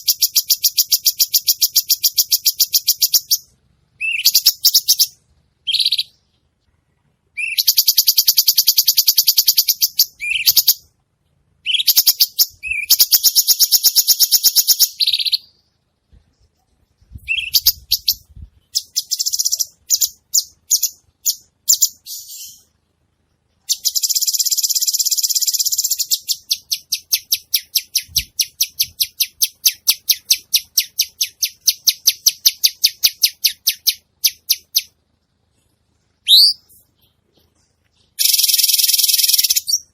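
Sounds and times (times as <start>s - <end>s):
bird singing rattling phrases: 0.0s - 11.0s, 11.6s - 35.3s, 36.0s - 39.9s.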